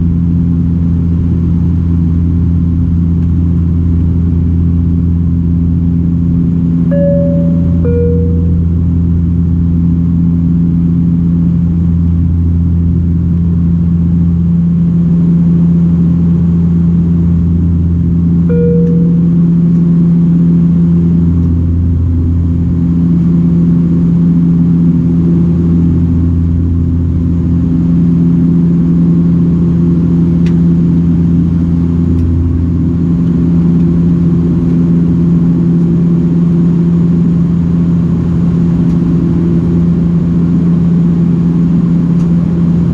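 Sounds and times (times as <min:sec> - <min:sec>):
turboprop engines droning in cabin: 0:00.0 - 0:42.9
short higher tone: 0:06.9 - 0:09.4, 0:18.5 - 0:20.0.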